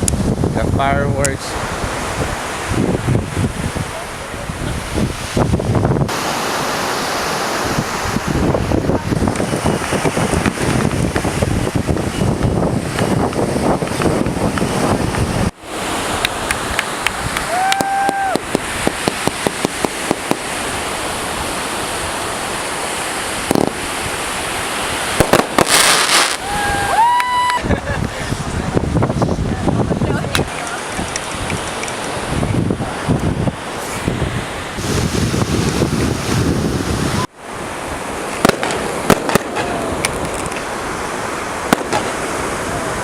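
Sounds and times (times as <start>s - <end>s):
surf: 0.0s - 43.0s
wind on microphone: 0.0s - 43.0s
firework bangs: 16.1s - 21.0s, 23.3s - 27.6s, 38.3s - 40.7s, 41.6s - 42.5s.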